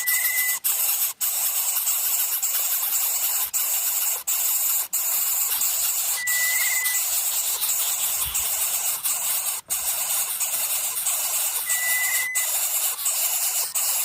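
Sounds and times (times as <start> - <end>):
steady high-pitched hiss: 1.4 - 14.0
faint short whistled tone: 6.2 - 7.0, 11.7 - 12.5.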